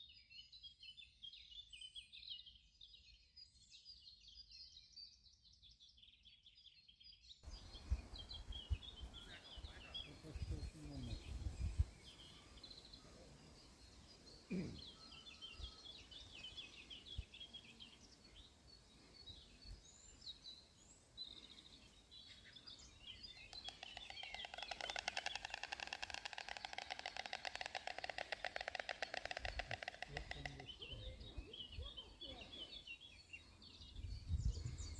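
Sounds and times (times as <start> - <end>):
songbirds chirping: 0.0 - 34.9
stork bill-clattering: 23.6 - 30.7.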